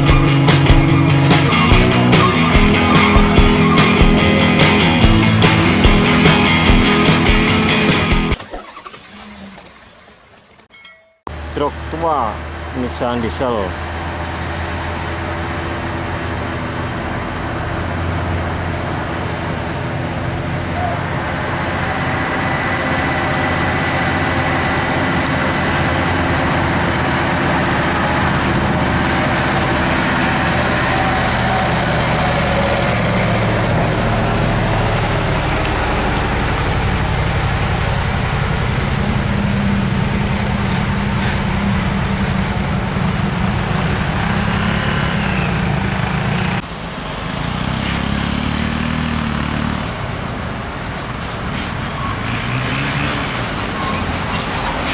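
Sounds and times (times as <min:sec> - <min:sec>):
trucks driving past: 0:00.0 - 0:10.5, 0:11.3 - 0:54.9
traffic noise: 0:00.0 - 0:10.7, 0:11.3 - 0:54.9.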